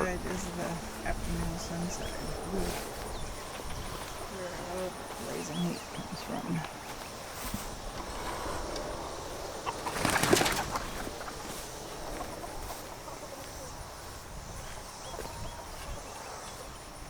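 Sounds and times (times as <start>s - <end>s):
small ticks: 7.4s - 8.9s
wings flapping: 9.1s - 12.9s.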